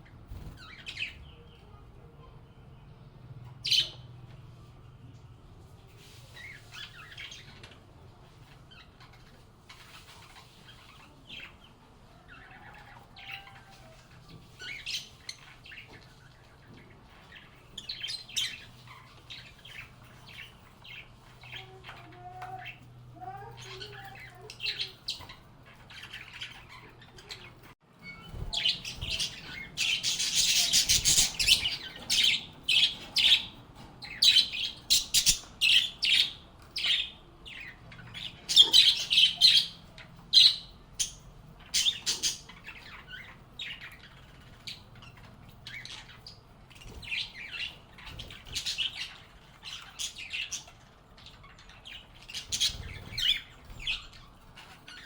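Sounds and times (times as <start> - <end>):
lovebirds chirping: 0.0 - 5.2, 5.8 - 55.0.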